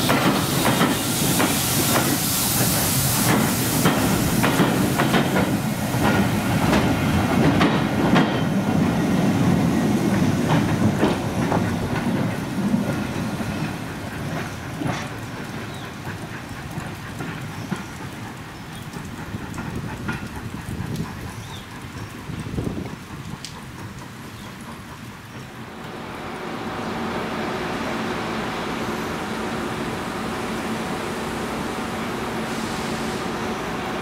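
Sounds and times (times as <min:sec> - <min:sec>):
train wheels clicking over rail joints: 0:00.0 - 0:25.9
steam hissing: 0:00.0 - 0:34.0.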